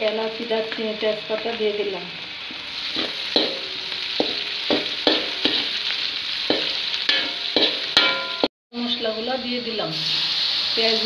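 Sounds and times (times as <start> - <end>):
onions frying in hot oil: 0.0 - 11.0
metal spatula scraping a pot: 6.5 - 8.4.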